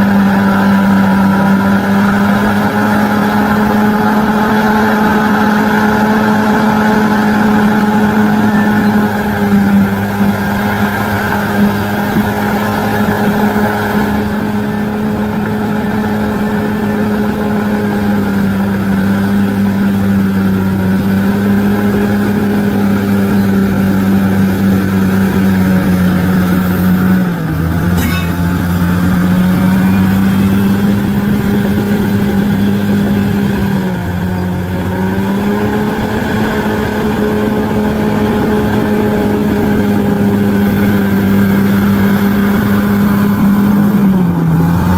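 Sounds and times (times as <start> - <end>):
bulldozer diesel engine running: 0.0 - 44.9.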